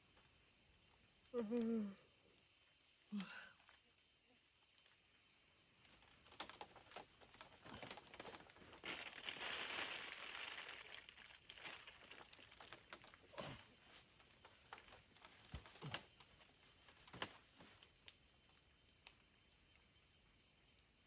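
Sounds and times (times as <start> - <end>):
crinkling and rustling: 4.7 - 19.3.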